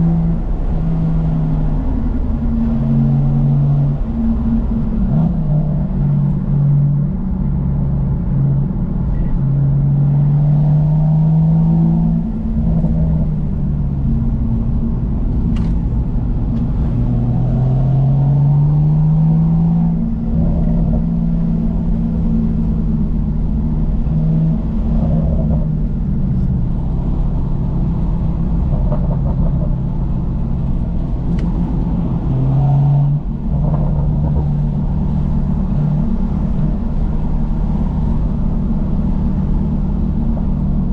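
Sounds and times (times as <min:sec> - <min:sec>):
car engine revving through gears: 0:15.4 - 0:22.2.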